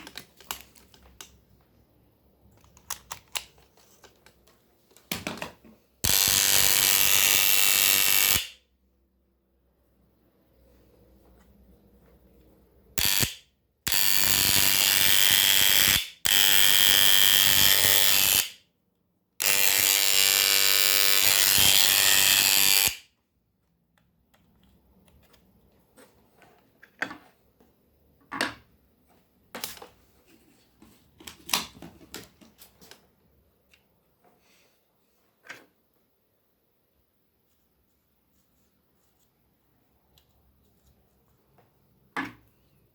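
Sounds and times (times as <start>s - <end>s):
hair clipper motor buzzing: 6.0s - 8.6s, 13.0s - 18.6s, 19.4s - 23.0s.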